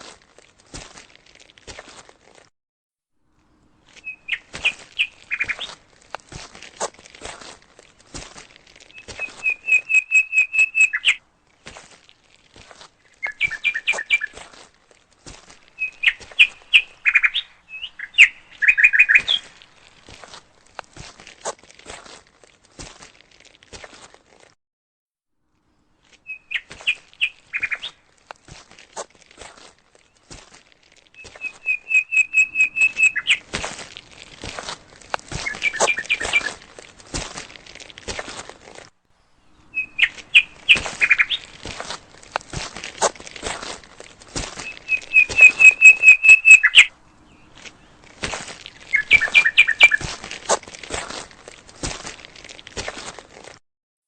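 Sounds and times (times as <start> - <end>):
footsteps crunching on forest floor: 0.0 - 2.5, 3.3 - 24.6, 25.6 - 53.6
songbird singing: 3.4 - 5.8, 8.8 - 11.2, 13.0 - 14.5, 15.7 - 19.9, 25.6 - 28.1, 31.1 - 33.6, 35.3 - 36.7, 39.1 - 42.0, 44.4 - 50.2
faint scuffs and clicks: 3.8 - 9.9, 18.8 - 24.6, 26.0 - 31.8, 32.6 - 38.9, 40.0 - 46.9, 47.5 - 53.6.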